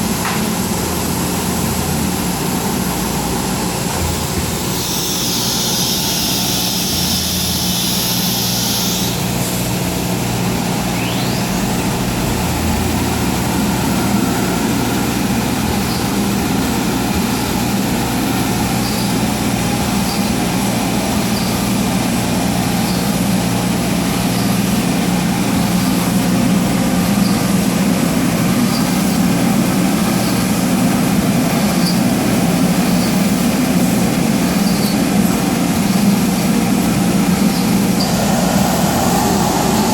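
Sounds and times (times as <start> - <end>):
cnc router drone: 0.0 - 39.9
high hiss: 4.7 - 9.9, 36.8 - 39.9.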